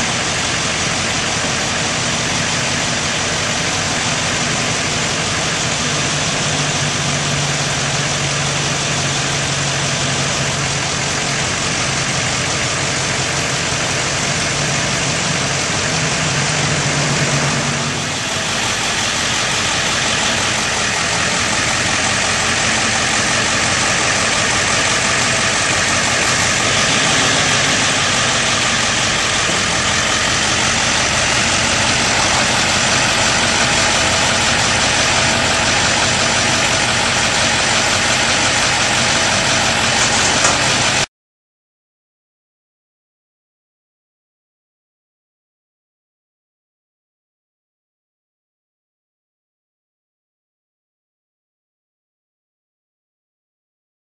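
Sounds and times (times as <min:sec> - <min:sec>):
truck engine running: 0:00.0 - 0:41.1.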